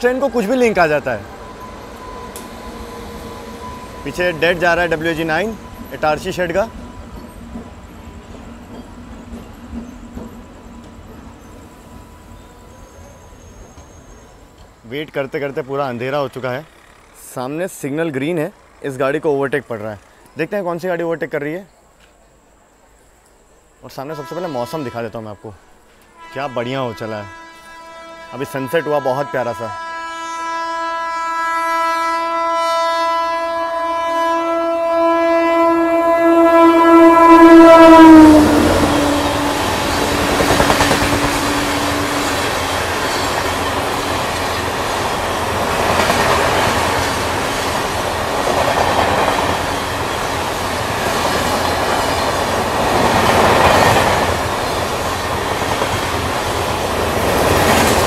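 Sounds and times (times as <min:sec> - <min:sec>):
train coaches rumbling past: 0:00.0 - 0:22.5, 0:23.7 - 0:58.0
train horn blast: 0:24.0 - 0:44.6.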